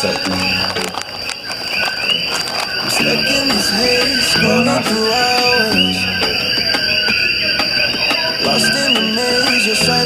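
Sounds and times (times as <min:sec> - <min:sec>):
crickets trilling: 0:00.0 - 0:09.9
background music with beat: 0:03.0 - 0:10.0.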